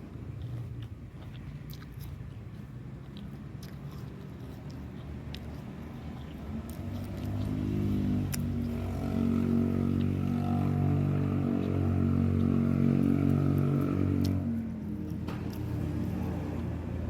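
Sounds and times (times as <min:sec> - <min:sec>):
vehicle engine running: 0:05.8 - 0:17.0.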